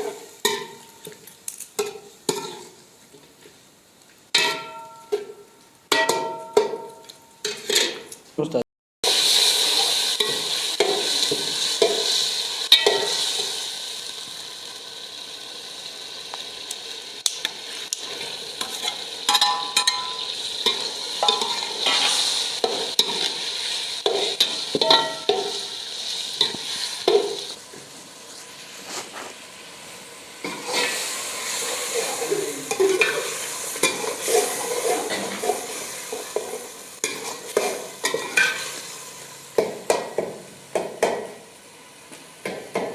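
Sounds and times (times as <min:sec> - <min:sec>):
meat sizzling in oil: 0:00.0 - 0:02.8, 0:09.0 - 0:42.9
metal utensil scraping a pan: 0:04.4 - 0:08.1, 0:18.6 - 0:25.8, 0:30.4 - 0:31.1, 0:32.0 - 0:38.8.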